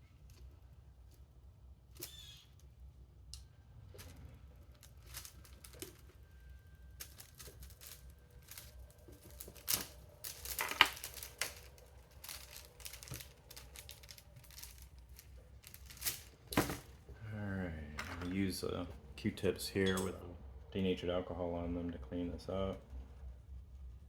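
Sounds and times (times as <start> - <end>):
rustling: 0.0 - 19.2.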